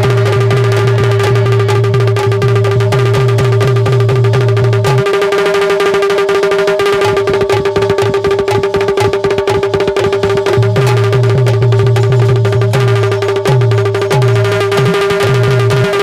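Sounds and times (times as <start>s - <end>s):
deep bass notes: 0.0s - 5.0s, 10.4s - 16.0s
fast hand drum strokes: 0.0s - 16.0s
held drone note: 0.0s - 16.0s.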